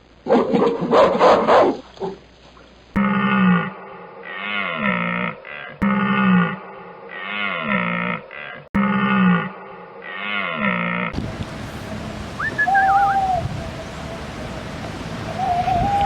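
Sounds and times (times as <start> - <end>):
faint high gliding animal call: 9.8 - 16.0
wind noise: 11.2 - 16.0.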